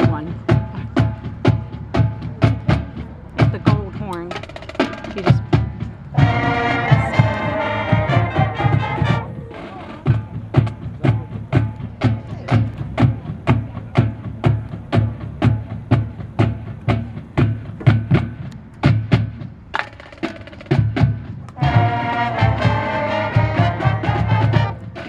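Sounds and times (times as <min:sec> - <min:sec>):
percussion sharp hits: 0:00.0 - 0:25.0
brass holding a loud chord: 0:06.2 - 0:09.3, 0:21.6 - 0:25.0
bass drum thumps: 0:10.1 - 0:19.4.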